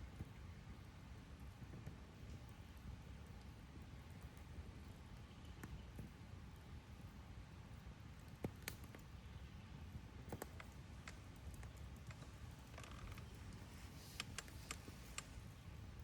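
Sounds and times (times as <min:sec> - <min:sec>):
wood fire crackling: 0:10.1 - 0:16.0.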